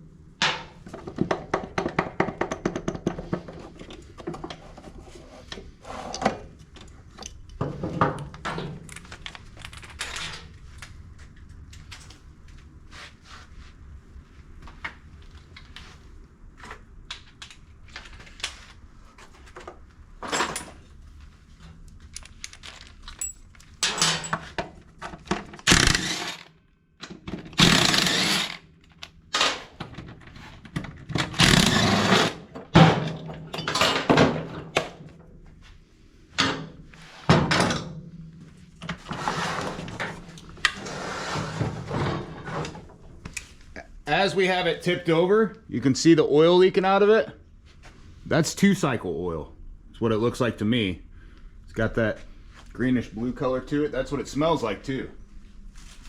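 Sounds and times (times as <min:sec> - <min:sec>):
tools clinking on metal: 0:22.1 - 0:24.6
rattling scraping bursts: 0:25.6 - 0:26.5, 0:27.5 - 0:28.7, 0:31.2 - 0:32.8.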